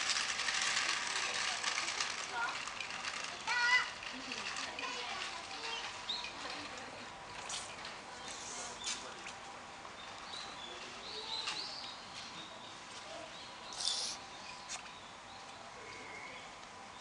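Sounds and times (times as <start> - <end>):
outdoor background noise: 0.0 - 17.0
small birds chirping: 9.8 - 17.0.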